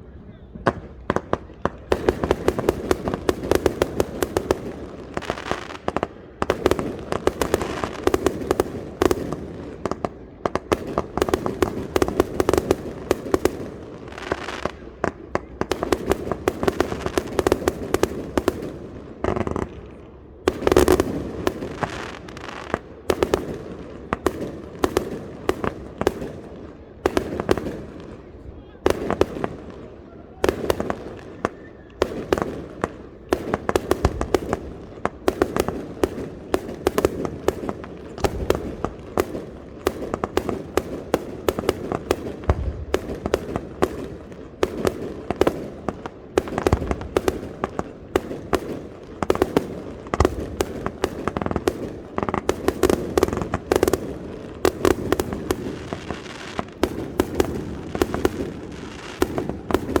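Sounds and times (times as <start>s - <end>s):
fireworks bangs and bursts: 0.5s - 60.0s.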